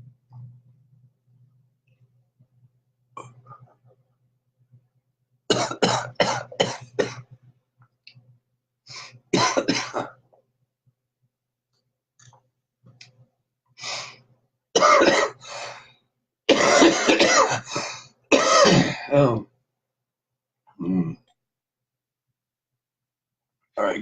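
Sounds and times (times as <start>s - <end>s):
man coughing hard: 5.5s - 7.3s, 9.4s - 10.2s, 14.8s - 15.4s, 16.5s - 19.4s.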